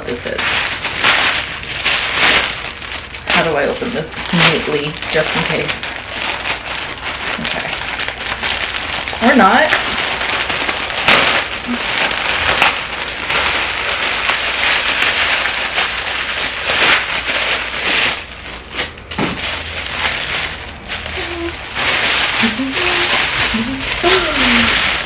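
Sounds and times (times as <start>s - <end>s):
package wrapping tearing and crinkling: 0.0s - 25.0s.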